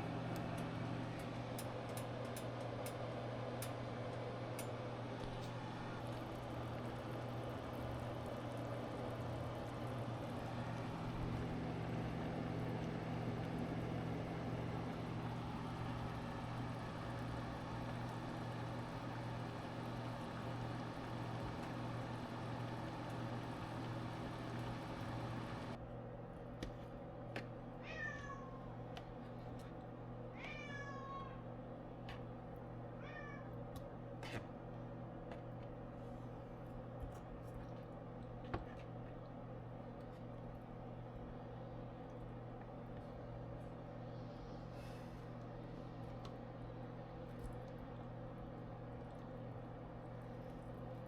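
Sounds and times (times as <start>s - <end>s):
steady hum with hiss: 0.0s - 51.0s
cat meowing: 27.8s - 28.6s, 30.4s - 31.4s, 33.0s - 33.5s.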